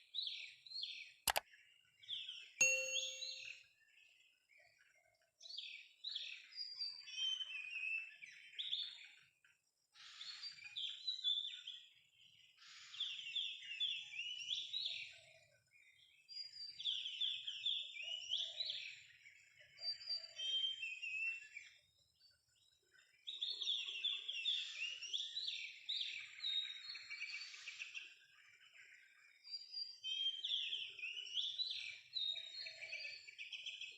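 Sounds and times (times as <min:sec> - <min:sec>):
bird whistling song: 0:02.6 - 0:03.6, 0:12.7 - 0:15.1, 0:23.3 - 0:28.2, 0:29.4 - 0:33.9.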